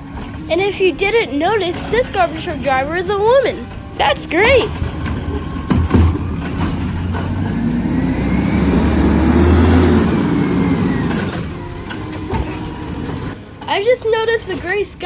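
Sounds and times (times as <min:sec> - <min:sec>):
garbage truck engine revving: 0:00.0 - 0:15.0
knocks: 0:03.7 - 0:13.4.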